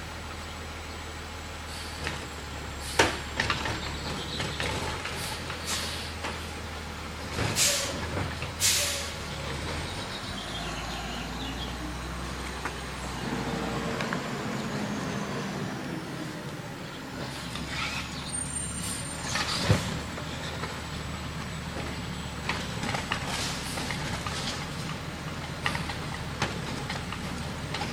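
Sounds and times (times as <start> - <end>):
garbage truck engine running: 0.0 - 27.9
air brake hisses: 5.2 - 6.2, 7.6 - 8.0, 8.6 - 9.2.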